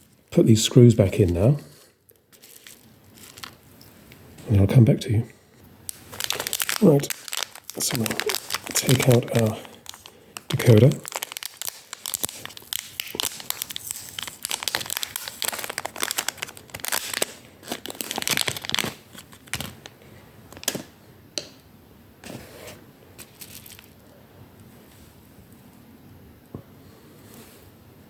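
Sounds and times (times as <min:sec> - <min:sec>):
packaging crinkling and rustling: 0:02.2 - 0:03.8, 0:05.9 - 0:21.0, 0:23.2 - 0:24.1.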